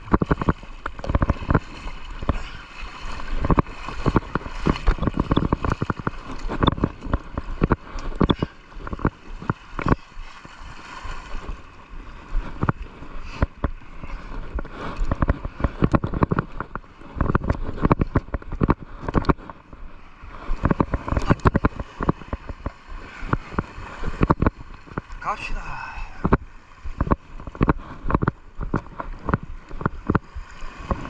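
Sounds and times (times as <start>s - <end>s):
seawater gurgling and sloshing: 0.0s - 31.0s
irregular knocks and pops: 3.4s - 10.0s, 14.5s - 19.6s, 20.6s - 25.2s, 27.0s - 30.3s.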